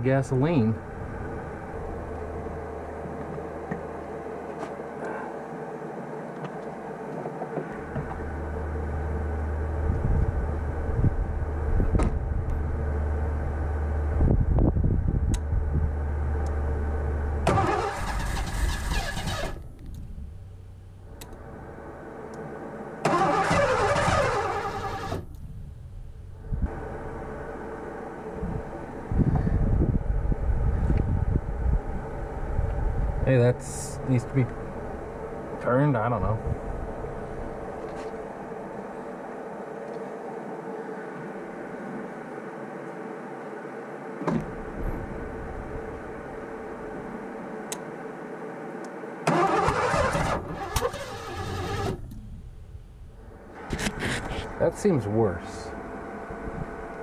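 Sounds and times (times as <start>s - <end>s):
low engine hum: 0.0s - 57.0s
loud engine bursts: 15.9s - 19.6s, 21.1s - 25.3s, 49.2s - 52.2s.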